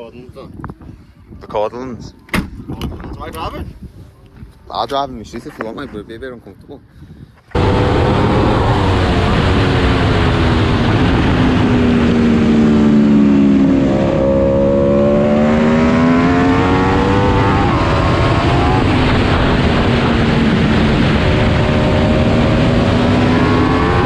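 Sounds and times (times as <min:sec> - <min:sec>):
wind noise: 0:00.0 - 0:24.0
motorcycle engine revving: 0:07.6 - 0:24.0.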